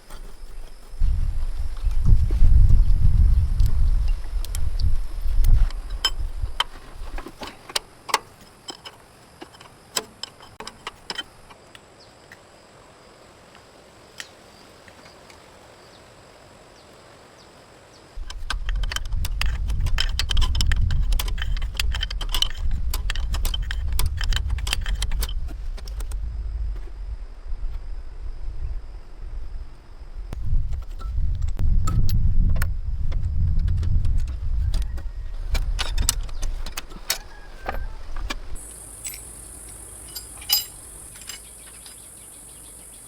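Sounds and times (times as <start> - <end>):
metallic clinks and knocks: 18.2 - 25.5, 38.6 - 42.1
steady low rumble: 18.2 - 36.1.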